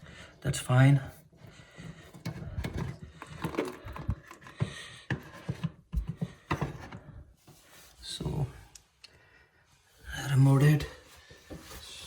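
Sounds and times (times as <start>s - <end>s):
knocks and clicks of unscrewing pipe: 1.8s - 7.6s.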